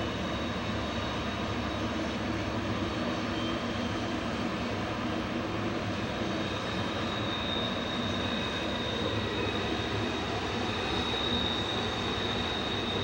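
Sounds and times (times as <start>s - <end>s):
diesel locomotives droning: 0.0s - 13.0s
rail cars rumbling: 0.0s - 13.0s
wheel squeal: 6.4s - 13.0s.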